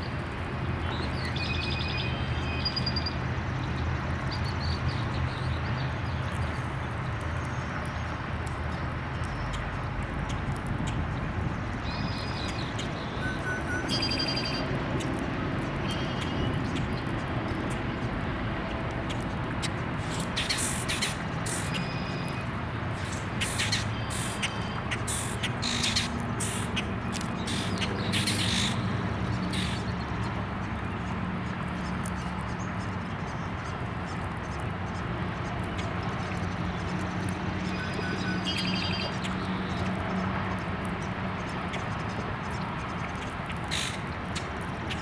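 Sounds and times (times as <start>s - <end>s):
outdoor noise: 0.0s - 45.0s
birds calling: 20.0s - 30.0s, 37.7s - 40.3s, 41.0s - 45.0s.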